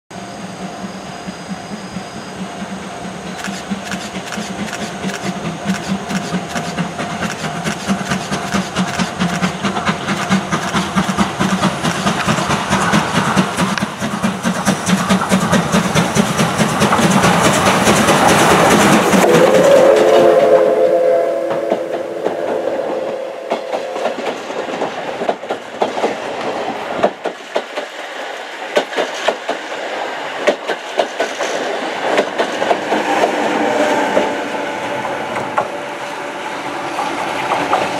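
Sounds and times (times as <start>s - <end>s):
train wheels clattering: 1.2s - 37.9s
steam train whistle: 19.0s - 24.5s, 32.8s - 37.9s.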